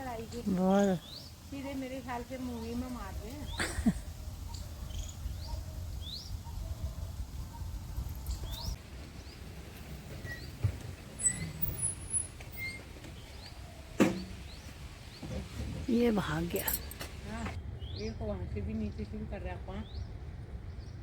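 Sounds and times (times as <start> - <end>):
wind rumble on microphone: 2.7 - 12.6.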